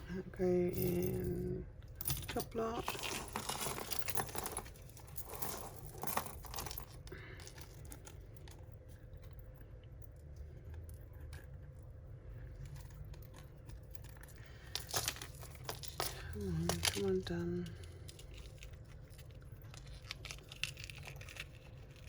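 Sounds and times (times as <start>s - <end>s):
metal jewellery chinking: 0.7s - 8.4s, 13.7s - 18.8s.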